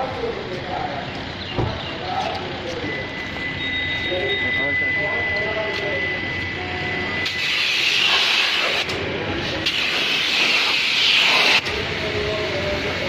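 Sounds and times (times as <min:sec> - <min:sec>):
pressure washer spraying: 0:07.2 - 0:08.9, 0:09.6 - 0:11.6.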